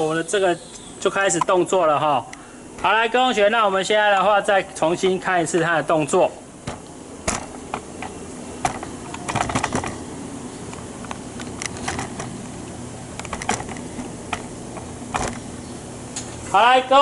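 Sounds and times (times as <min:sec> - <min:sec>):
steady low hum: 0:00.0 - 0:17.0
pneumatic valves and cylinders clicking: 0:06.6 - 0:12.5, 0:13.1 - 0:15.5.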